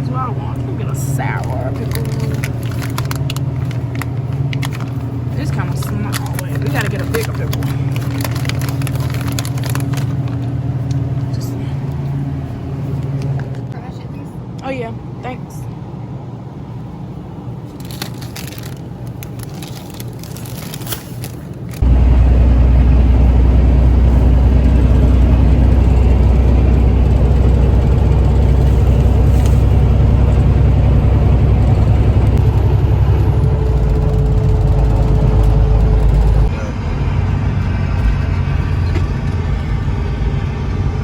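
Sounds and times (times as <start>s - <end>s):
road noise: 0.0s - 41.0s
truck engine drone: 0.0s - 41.0s
rustling and clicks: 5.8s - 11.0s, 17.7s - 21.8s.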